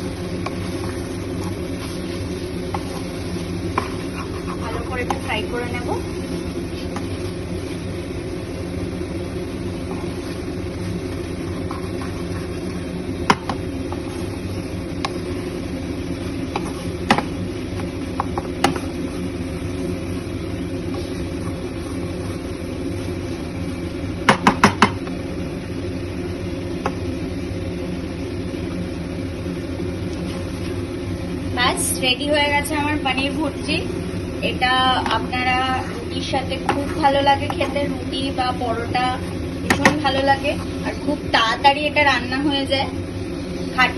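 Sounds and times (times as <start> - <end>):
food frying in a pan: 0.0 - 43.9
steady mechanical hum: 0.0 - 43.9
metal spatula knocking on pan: 24.3 - 25.0, 39.7 - 40.0.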